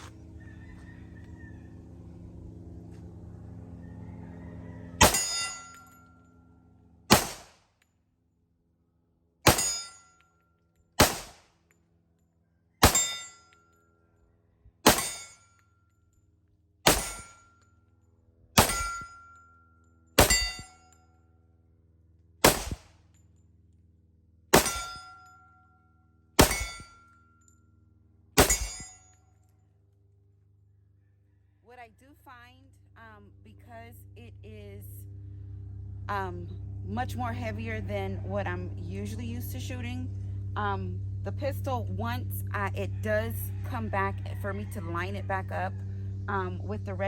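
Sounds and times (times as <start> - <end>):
pistol shots: 5.0 - 5.5, 7.1 - 7.6, 9.5 - 9.9, 11.0 - 11.4, 12.8 - 13.4, 14.8 - 15.3, 16.9 - 17.4, 18.6 - 19.0, 20.2 - 20.6, 22.4 - 22.9, 24.6 - 25.1, 26.4 - 26.9, 28.4 - 28.9
steel targets ringing: 5.0 - 6.2, 9.5 - 10.2, 12.8 - 13.6, 14.9 - 15.5, 16.9 - 17.5, 18.6 - 20.8, 24.5 - 25.5, 26.4 - 27.2, 28.4 - 29.1.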